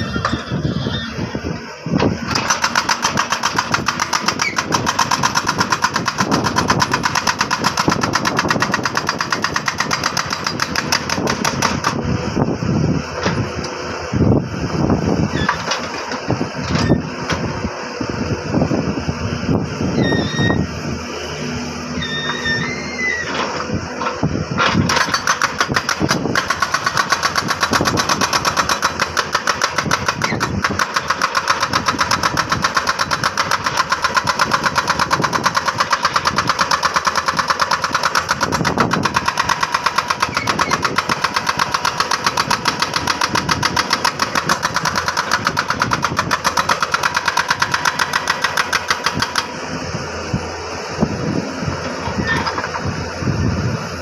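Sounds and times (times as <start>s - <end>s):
steady mechanical running sound: 0.0s - 54.0s
jackhammer pounding rock: 2.2s - 12.1s, 23.3s - 53.0s.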